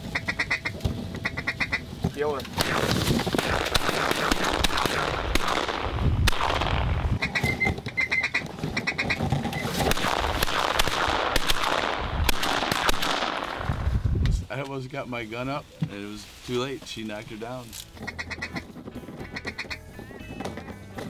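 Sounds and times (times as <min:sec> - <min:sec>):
ducks quacking rapidly: 0:00.0 - 0:01.9, 0:07.2 - 0:09.2, 0:18.0 - 0:19.9
shotgun shots: 0:02.6 - 0:07.2, 0:09.8 - 0:13.7.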